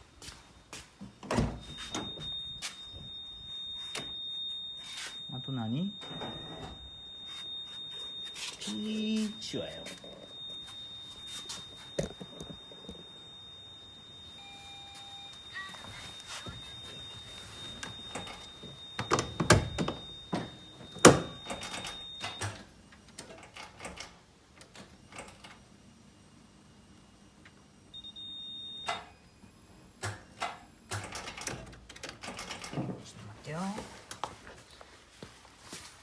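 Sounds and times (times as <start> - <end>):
high-pitched beep: 1.6 - 22.6.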